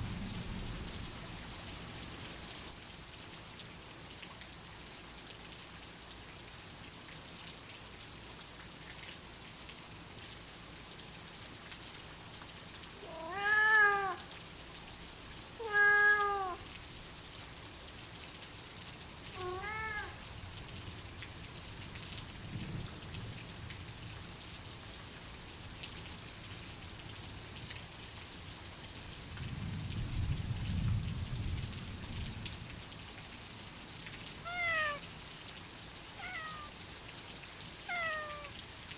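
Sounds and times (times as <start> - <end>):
soft thunder rumble: 0.0 - 1.7, 29.4 - 32.8
steady rain falling: 0.0 - 38.9
cat meowing: 13.0 - 14.3, 15.6 - 16.6, 19.4 - 20.2, 34.4 - 35.1, 36.2 - 36.8, 37.8 - 38.6.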